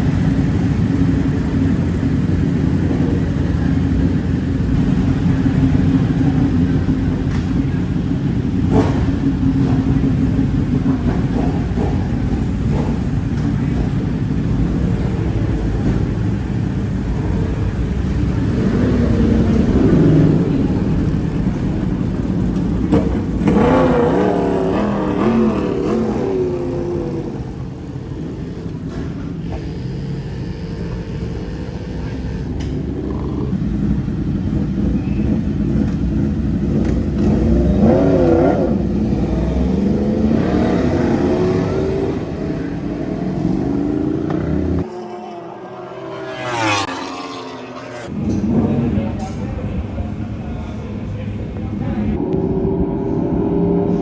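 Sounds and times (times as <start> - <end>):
motorcycle engine revving: 0.0 - 49.2
heavy wind rush: 51.8 - 54.0.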